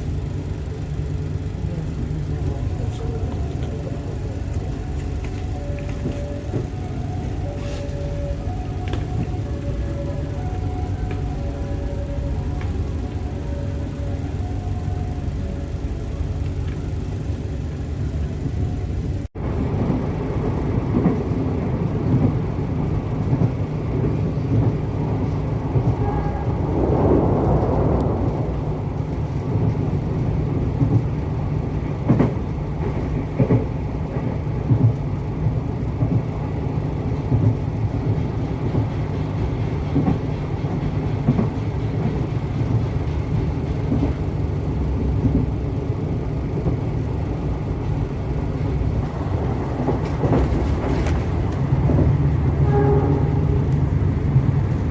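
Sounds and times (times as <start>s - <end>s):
train rumbling: 0.0s - 54.9s
wheels knocking and clunking: 0.0s - 54.9s.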